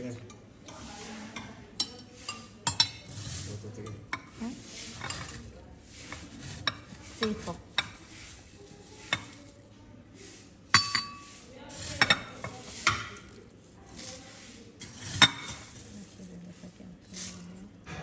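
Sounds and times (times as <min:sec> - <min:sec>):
kitchenware clinking: 0:00.2 - 0:09.6, 0:10.7 - 0:16.4
kitchenware scraping: 0:00.6 - 0:18.0.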